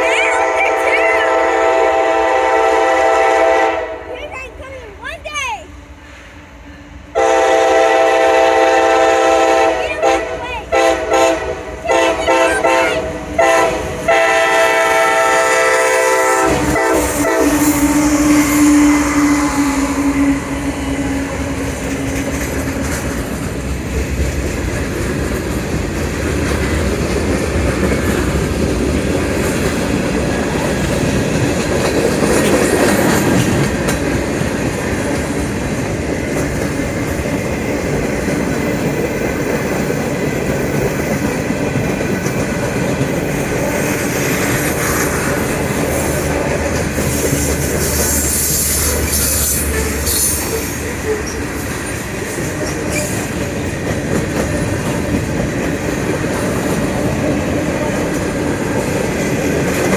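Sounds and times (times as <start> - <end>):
locomotive horn blasts: 0.0 - 4.1, 7.2 - 20.7
freight train rumbling past: 0.0 - 59.9
wheels clacking over rail joints: 21.0 - 59.9.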